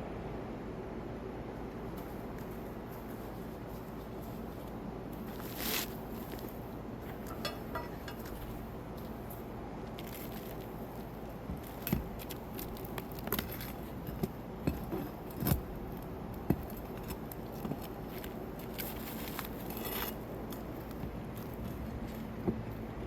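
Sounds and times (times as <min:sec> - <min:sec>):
hand tools clinking on metal: 0:07.1 - 0:08.6
rasping scrape: 0:18.8 - 0:20.2.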